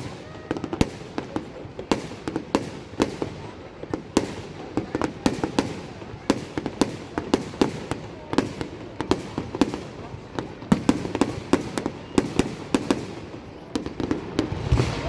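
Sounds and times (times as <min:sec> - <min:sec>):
continuous background noise: 0:00.0 - 0:15.0
fireworks bursting: 0:00.0 - 0:15.0.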